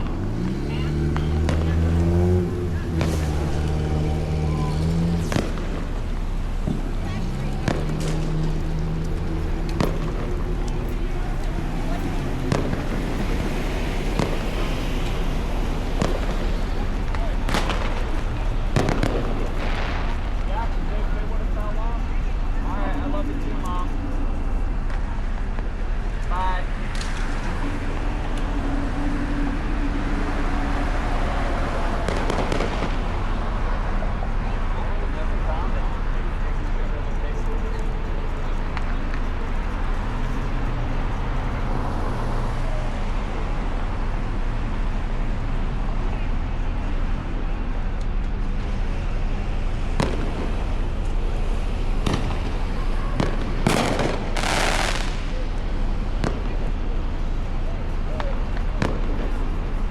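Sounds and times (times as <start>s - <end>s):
firework bangs: 0.0s - 35.5s, 48.4s - 59.9s
vehicles passing: 0.0s - 59.9s
hissing firework burst: 51.5s - 56.7s.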